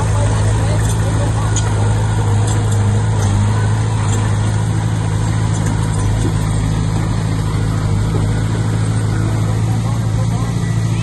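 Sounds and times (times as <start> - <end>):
bulldozer diesel engine droning: 0.0 - 11.0.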